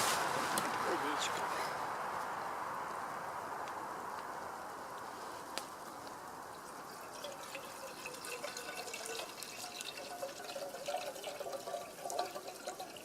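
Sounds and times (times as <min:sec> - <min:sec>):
water pouring into a pot: 0:06.5 - 0:13.0.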